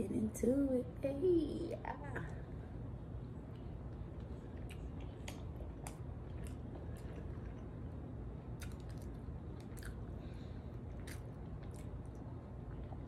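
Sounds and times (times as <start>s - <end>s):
low hum: 0.0s - 13.0s
person chewing food: 3.5s - 13.0s.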